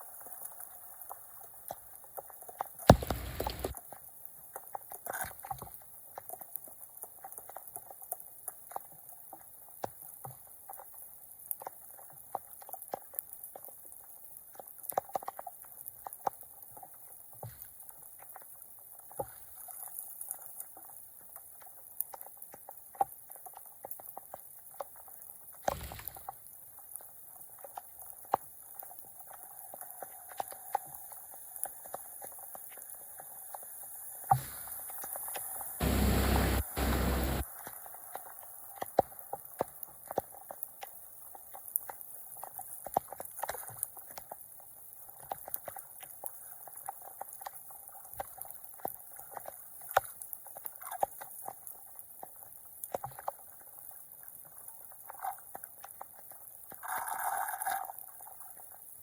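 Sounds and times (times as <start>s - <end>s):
loud thump: 2.9s - 3.7s
short splashes and knocks: 2.9s - 3.8s
flood water gurgling: 35.5s - 37.4s.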